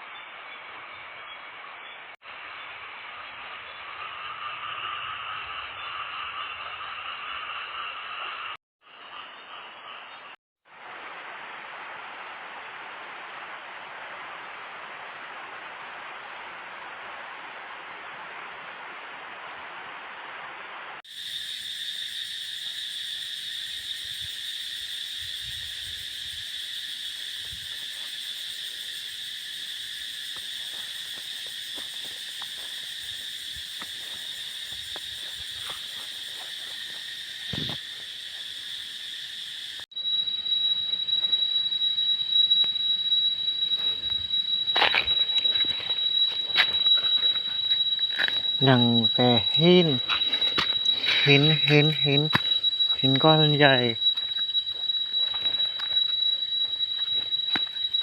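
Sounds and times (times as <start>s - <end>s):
high-pitched insect chorus: 2.3s - 8.6s, 21.1s - 58.0s
shrill insect tone: 21.1s - 58.0s.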